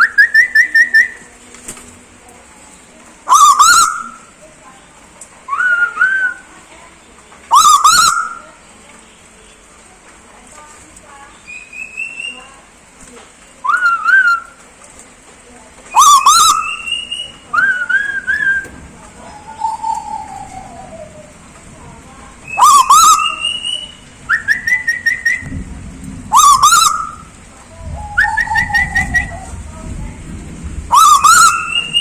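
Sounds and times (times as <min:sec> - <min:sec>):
bird whistling calls: 0:00.0 - 0:01.3, 0:03.3 - 0:04.3, 0:05.5 - 0:06.5, 0:07.5 - 0:08.5, 0:11.4 - 0:12.6, 0:13.6 - 0:14.6, 0:15.9 - 0:21.4, 0:22.4 - 0:25.6, 0:26.3 - 0:29.6, 0:30.9 - 0:32.0.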